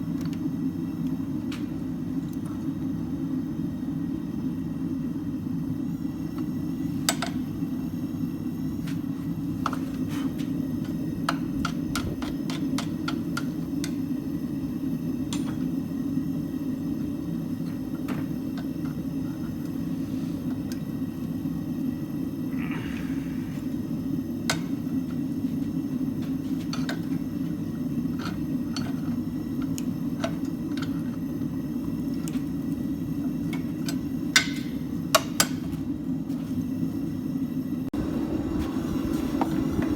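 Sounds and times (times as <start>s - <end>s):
forge roaring: 22.4s - 24.0s.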